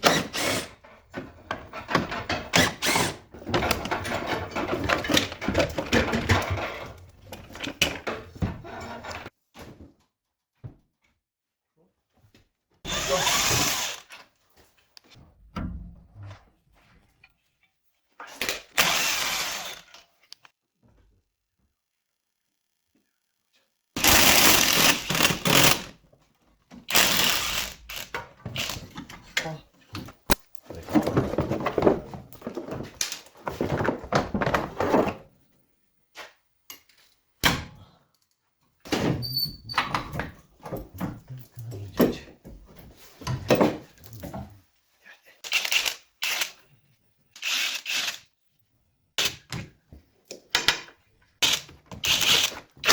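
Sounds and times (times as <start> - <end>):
metal parts and tools clunking: 1.1 - 9.3
power tool running: 12.9 - 14.0, 24.0 - 25.9, 26.9 - 28.8.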